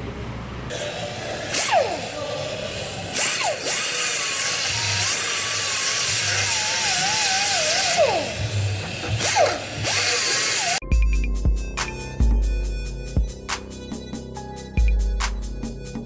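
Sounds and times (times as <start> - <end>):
die grinder grinding metal: 0.7 - 10.8.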